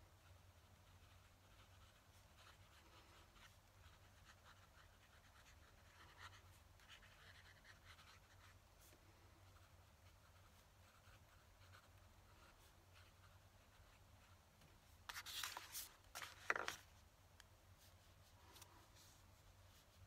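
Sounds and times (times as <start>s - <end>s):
pen nib scratching paper: 0.2s - 8.6s.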